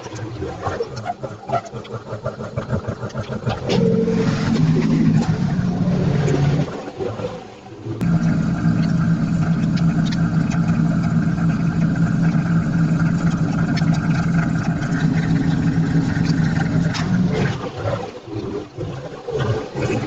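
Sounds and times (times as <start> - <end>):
lawn mower engine running: 8.0 - 17.3.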